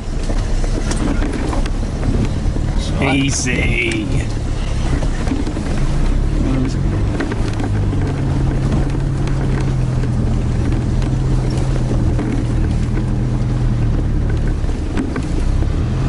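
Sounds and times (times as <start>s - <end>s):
engine running at low revs: 0.0s - 16.0s
vehicle knocks and rattles: 0.0s - 16.0s.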